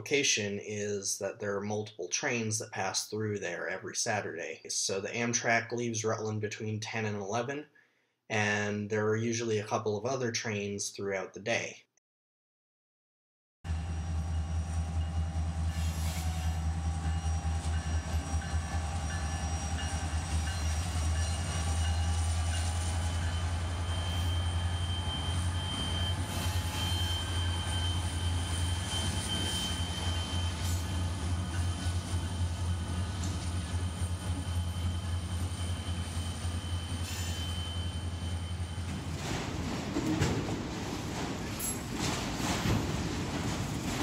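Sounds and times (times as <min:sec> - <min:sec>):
locomotive engines droning: 0:13.7 - 0:44.0
train cars rolling on rails: 0:13.7 - 0:44.0
high wheel squeal: 0:15.6 - 0:39.2.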